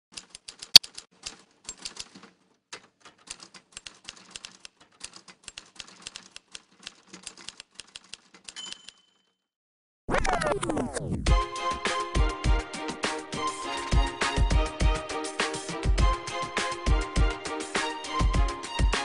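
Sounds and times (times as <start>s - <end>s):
typewriter keys clicking: 0.1s - 9.0s.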